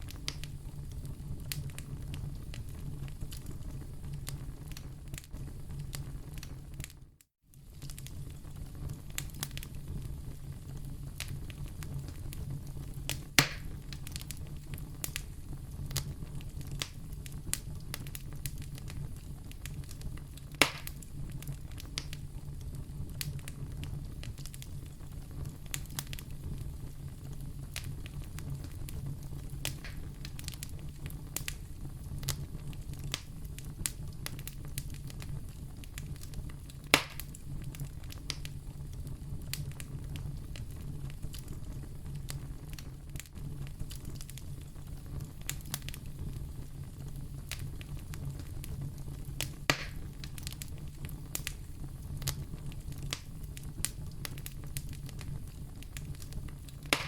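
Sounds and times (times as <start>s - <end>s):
fire crackling: 0.0s - 57.0s
fire flames rumbling: 0.0s - 57.0s
sharp loud pops of fire: 13.1s - 14.0s, 20.5s - 21.0s, 29.6s - 30.6s, 36.8s - 37.4s, 49.4s - 50.6s, 56.8s - 57.0s.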